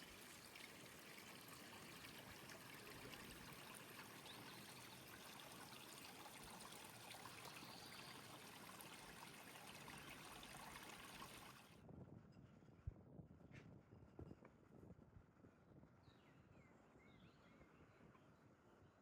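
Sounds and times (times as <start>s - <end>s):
faint rushing stream water: 0.0s - 11.8s.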